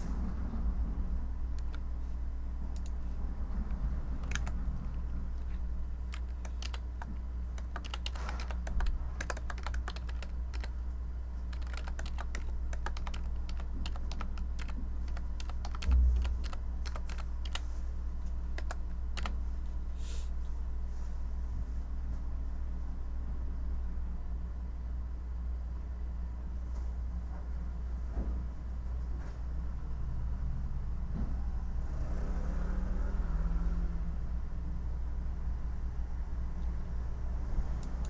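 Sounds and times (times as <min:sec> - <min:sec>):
low background hum: 0:00.0 - 0:32.0, 0:33.4 - 0:38.0
typing on computer keyboard: 0:01.6 - 0:01.9, 0:02.7 - 0:03.0, 0:03.7 - 0:10.8, 0:11.5 - 0:17.7, 0:18.5 - 0:19.4
low thump: 0:15.9 - 0:16.2.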